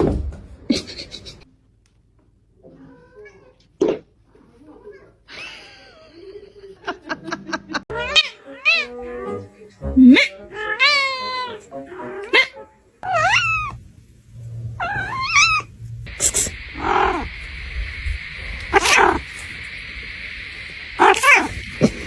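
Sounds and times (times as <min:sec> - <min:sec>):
pet animal calling: 0:12.3 - 0:13.8, 0:14.8 - 0:17.5, 0:18.4 - 0:19.7, 0:20.8 - 0:22.0
steady hiss: 0:13.0 - 0:22.0.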